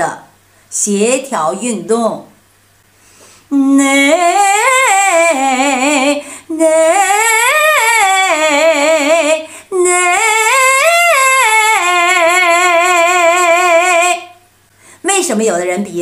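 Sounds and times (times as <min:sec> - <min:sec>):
person singing vocal scales: 0:03.5 - 0:14.4.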